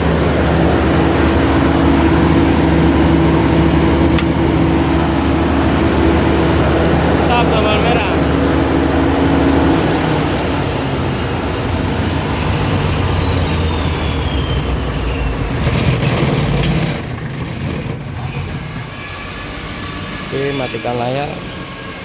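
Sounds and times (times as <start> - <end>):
high whine falling in pitch: 0.0 - 17.2
diesel generator running: 0.0 - 22.0.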